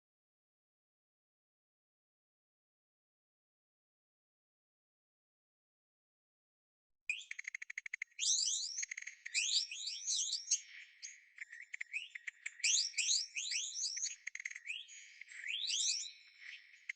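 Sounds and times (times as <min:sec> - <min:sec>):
bird ticking trill: 0:07.1 - 0:16.9
high bird chirps sweeping upward: 0:08.2 - 0:10.7, 0:11.6 - 0:16.9.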